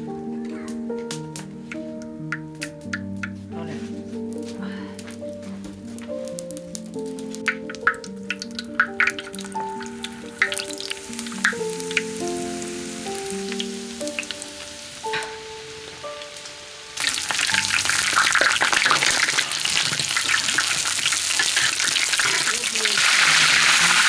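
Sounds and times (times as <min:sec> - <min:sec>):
soft background music: 0:00.0 - 0:21.6
dumplings sizzling in hot oil: 0:05.3 - 0:24.0.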